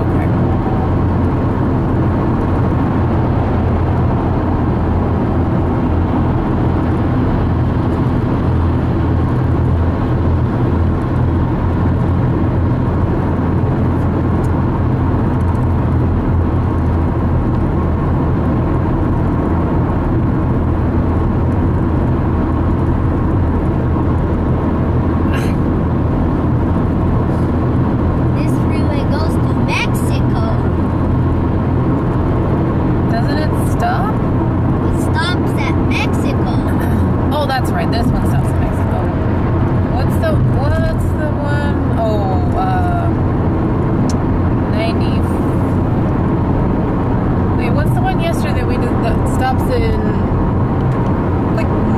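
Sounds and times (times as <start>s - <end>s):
road and engine noise inside car: 0.0s - 51.9s.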